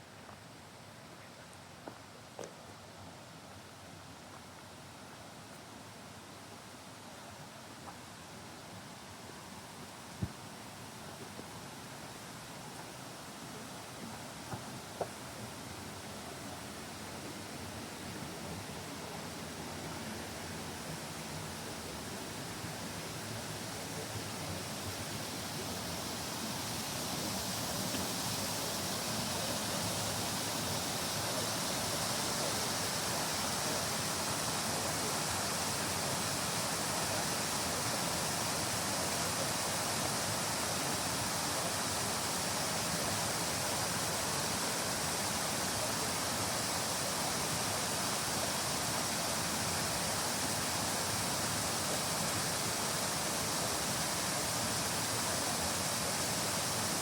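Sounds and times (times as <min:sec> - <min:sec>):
stream water rushing: 0:04.0 - 0:57.0.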